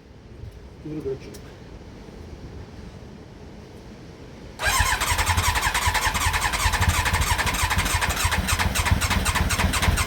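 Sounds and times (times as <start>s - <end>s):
motorcycle engine cranking on starter: 4.6s - 10.0s.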